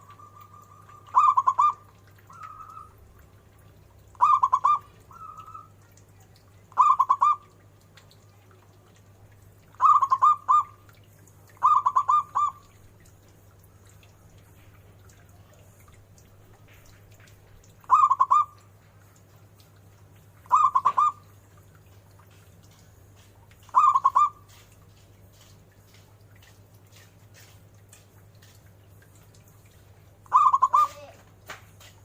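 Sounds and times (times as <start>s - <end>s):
dove cooing: 0.0s - 3.0s, 4.1s - 5.8s, 6.7s - 7.5s, 9.8s - 10.8s, 11.6s - 12.8s, 17.8s - 18.6s, 20.5s - 21.3s, 23.6s - 24.6s, 30.3s - 31.2s.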